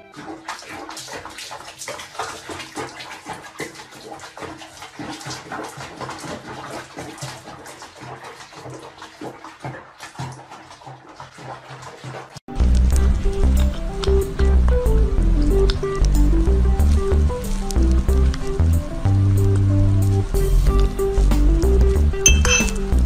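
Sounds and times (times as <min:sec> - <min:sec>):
water splashing in a basin: 0:00.0 - 0:23.0.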